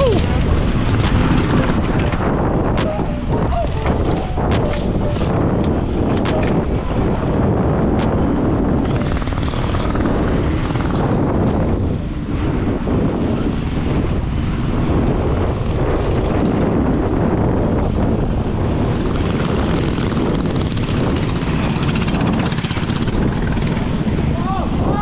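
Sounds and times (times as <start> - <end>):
road noise: 0.0 - 25.0
rushing wind: 0.0 - 25.0
mini bike engines running: 18.6 - 24.0.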